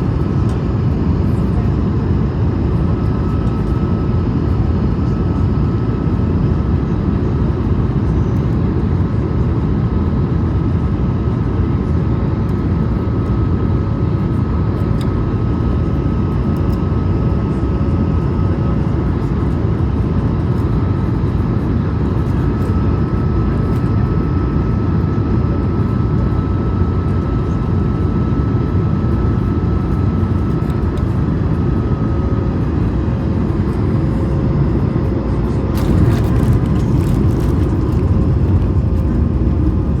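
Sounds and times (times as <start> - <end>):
jet engines: 0.0 - 40.0
loud rumble of airflow: 0.0 - 40.0.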